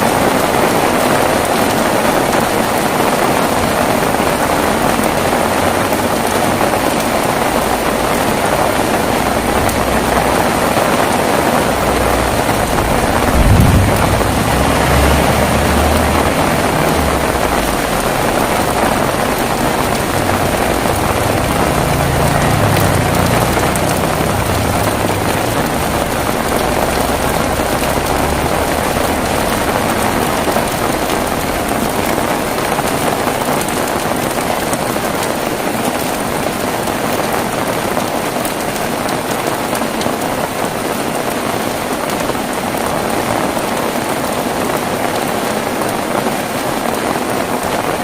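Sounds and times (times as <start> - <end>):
heavy rain falling: 0.0 - 48.0
thunder rumbling: 0.2 - 36.7.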